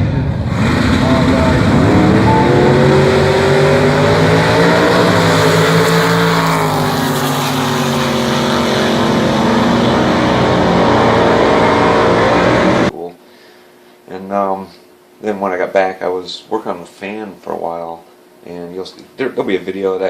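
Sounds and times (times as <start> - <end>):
loud drag-racing engine: 0.0 - 12.9.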